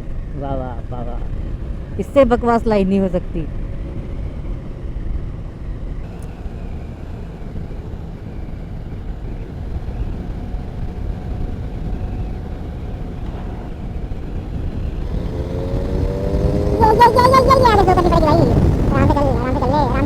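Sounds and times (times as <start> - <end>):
motorcycle engine running: 5.4 - 20.0
wind rushing over microphone: 11.6 - 20.0.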